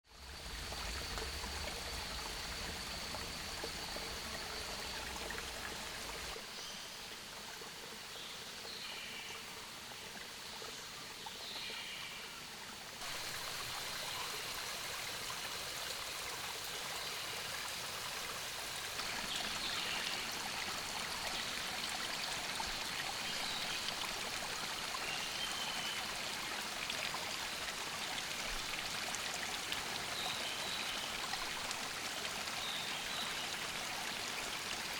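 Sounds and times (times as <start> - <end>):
rushing water: 0.1 - 34.9.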